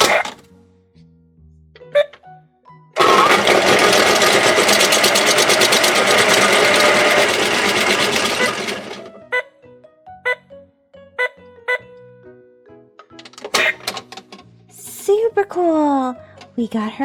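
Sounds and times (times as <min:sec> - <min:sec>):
toy washing machine whirring: 0:00.0 - 0:00.4, 0:03.0 - 0:09.3, 0:13.3 - 0:14.4.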